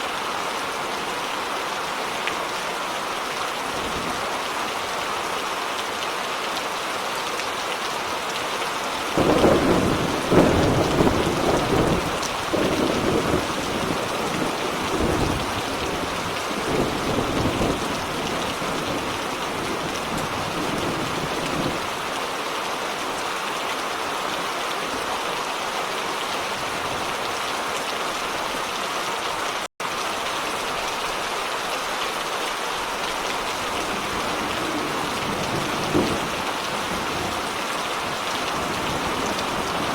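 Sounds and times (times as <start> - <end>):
heavy rain: 0.0 - 39.9
thunder rumbling: 9.2 - 21.9, 33.5 - 39.9.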